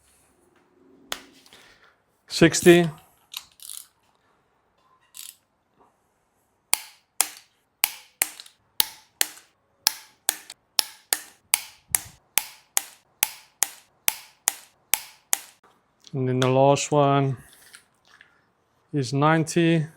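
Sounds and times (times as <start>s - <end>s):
torque wrench clicking: 6.8s - 15.6s.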